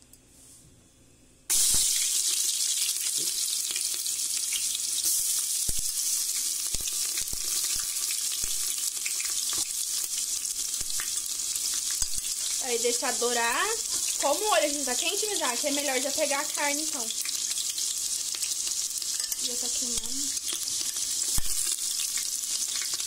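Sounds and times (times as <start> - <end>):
onion sizzling in hot oil: 1.5 - 23.0.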